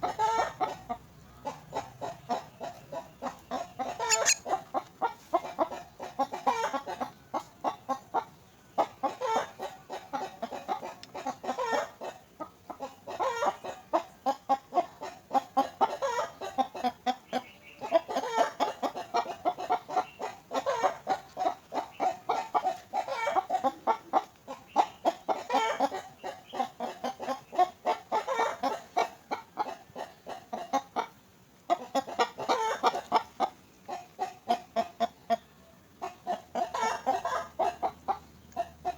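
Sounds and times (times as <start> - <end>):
young bird begging calls: 4.0 - 4.5.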